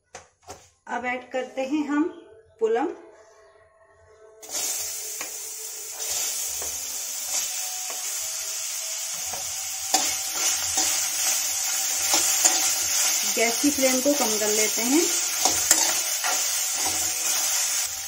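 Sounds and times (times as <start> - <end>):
fruit sizzling in a pan: 4.4 - 18.0
spoon stirring against a pan: 9.2 - 18.0.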